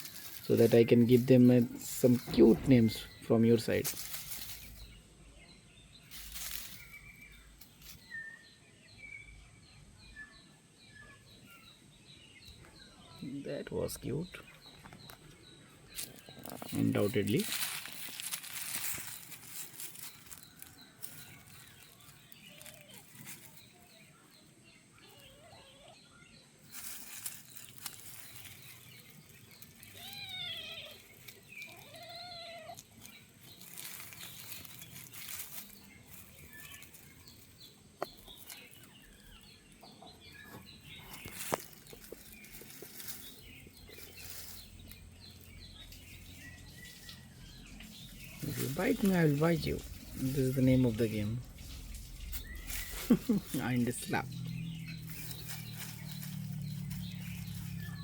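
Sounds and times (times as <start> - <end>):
kittens rustling and scuffling: 0.0 - 5.1, 6.0 - 8.3, 14.3 - 25.9, 26.6 - 58.0
kitten high calls: 31.7 - 32.8.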